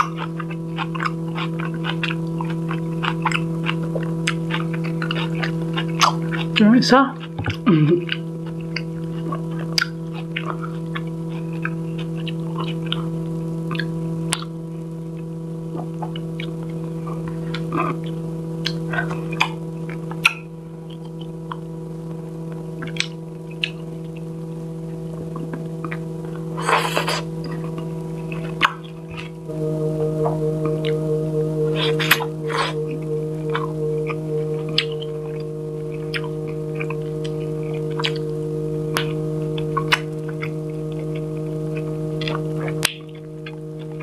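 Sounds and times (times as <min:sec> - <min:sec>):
person chewing: 0:00.0 - 0:06.6, 0:07.2 - 0:13.1, 0:13.7 - 0:14.5, 0:25.2 - 0:29.4, 0:35.9 - 0:38.3
noisy burst: 0:00.0 - 0:44.0
steady low hum: 0:00.0 - 0:44.0.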